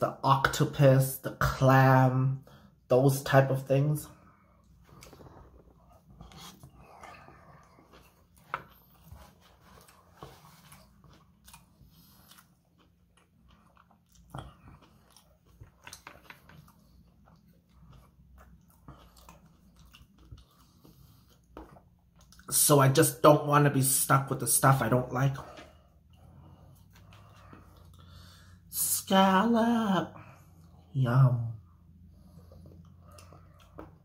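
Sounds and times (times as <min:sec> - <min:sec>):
person chewing food: 0:04.1 - 0:22.5, 0:25.4 - 0:28.7, 0:31.6 - 0:34.0.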